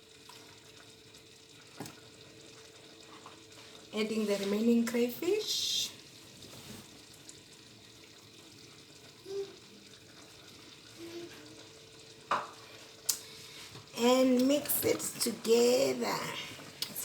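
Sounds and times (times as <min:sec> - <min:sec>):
soup sizzling in a pot: 0:00.0 - 0:17.0.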